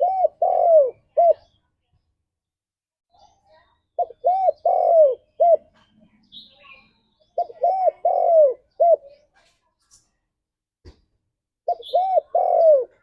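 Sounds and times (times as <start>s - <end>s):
dove cooing: 0.0s - 1.5s, 4.0s - 5.8s, 7.4s - 9.2s, 11.7s - 13.0s
faint high chirp: 3.1s - 9.1s, 11.7s - 12.8s.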